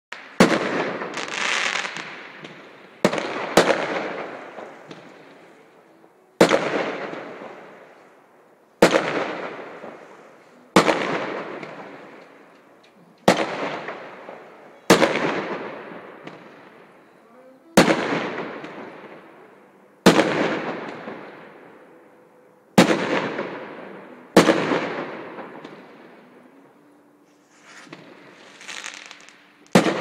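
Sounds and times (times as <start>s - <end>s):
fireworks bangs with rolling echo: 0.1s - 8.2s, 8.8s - 17.0s, 17.7s - 21.9s, 22.7s - 26.7s, 27.4s - 30.0s
brief hiss: 27.3s - 29.4s.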